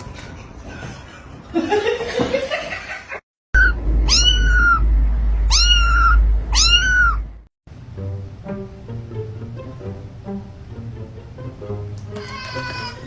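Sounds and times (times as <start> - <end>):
steady low hum: 3.6 - 11.7
cat meowing: 4.1 - 4.8, 5.5 - 7.3, 12.2 - 13.0.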